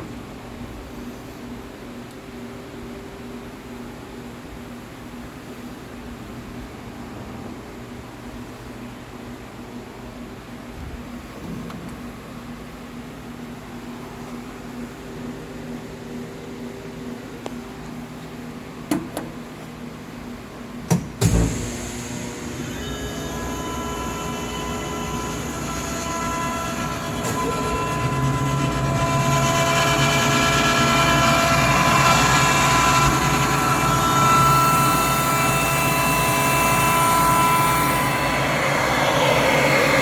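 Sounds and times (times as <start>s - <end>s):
air compressor running: 21.0s - 40.0s.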